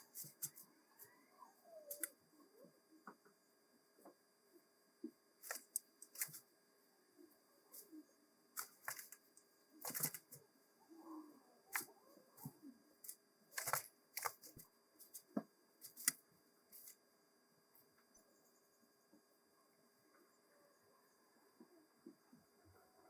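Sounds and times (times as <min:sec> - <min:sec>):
soft rustle: 0:00.0 - 0:01.1.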